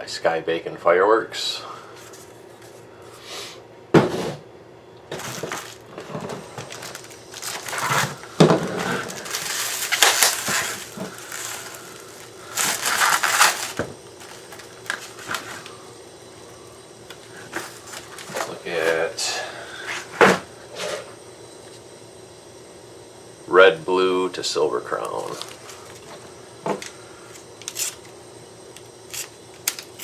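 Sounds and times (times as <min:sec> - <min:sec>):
packaging crinkling and rustling: 0:05.1 - 0:19.0, 0:25.0 - 0:28.2, 0:29.0 - 0:30.0.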